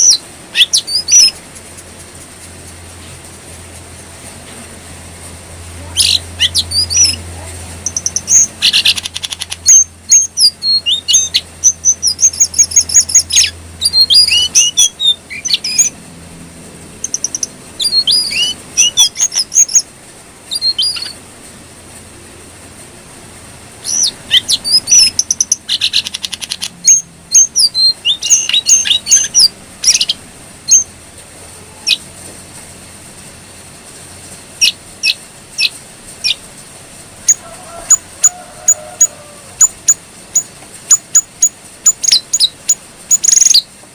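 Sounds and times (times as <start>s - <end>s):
songbird chirping and whistling: 0.0s - 1.4s, 5.9s - 16.0s, 17.0s - 21.2s, 23.8s - 30.9s, 31.8s - 32.0s, 34.6s - 36.4s, 37.2s - 43.7s.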